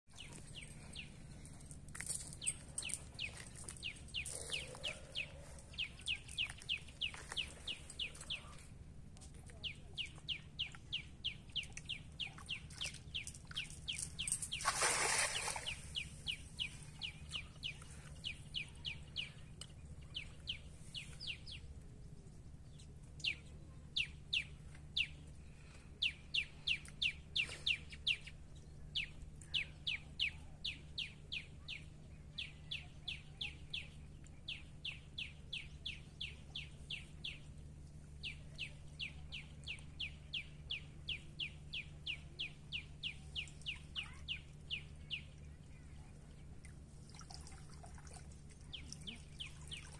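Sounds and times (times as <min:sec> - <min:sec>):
low steady hum: 0:00.1 - 0:49.9
net splashing into water: 0:14.6 - 0:15.9
bird chirping: 0:26.0 - 0:46.4.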